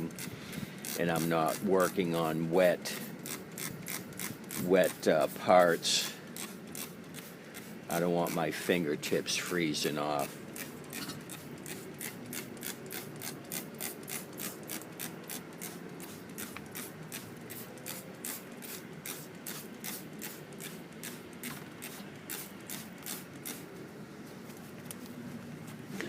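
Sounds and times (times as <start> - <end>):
spray bottle spritzing: 3.0 - 9.2, 9.9 - 23.8.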